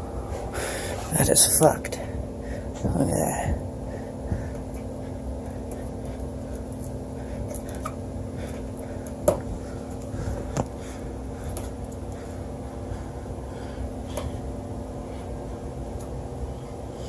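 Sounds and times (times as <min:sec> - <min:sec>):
machinery hum: 0:00.0 - 0:17.0.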